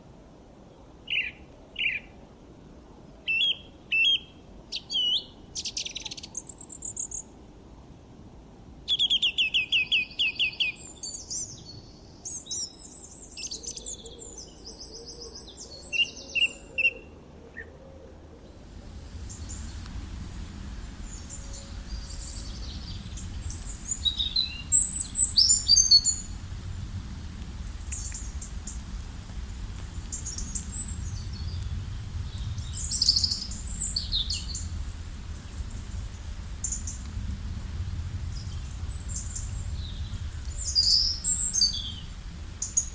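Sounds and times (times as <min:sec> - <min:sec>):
songbirds chirping: 0:00.7 - 0:02.3, 0:03.2 - 0:07.4, 0:08.9 - 0:42.9
low steady rumble: 0:18.4 - 0:42.9.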